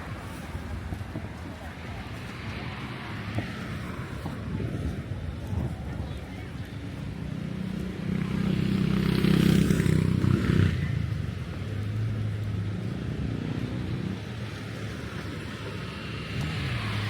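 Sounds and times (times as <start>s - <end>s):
traffic engine hum: 0.0s - 17.0s
vehicle engine passing by: 16.1s - 17.0s.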